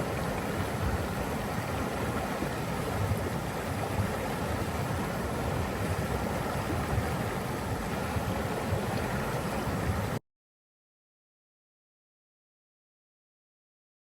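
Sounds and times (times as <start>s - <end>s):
rushing flowing water: 0.0s - 10.2s.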